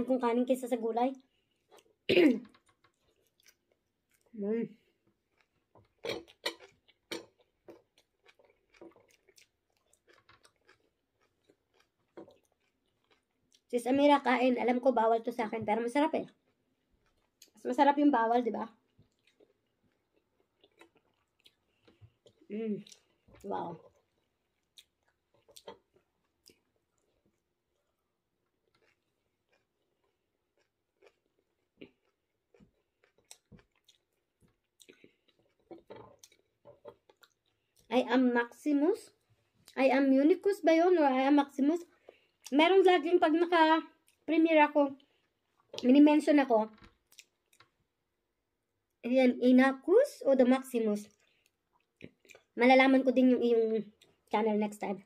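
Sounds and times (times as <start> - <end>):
person chewing food: 1.2 - 13.7, 16.3 - 17.6, 18.8 - 37.9, 46.8 - 48.0, 51.1 - 52.6.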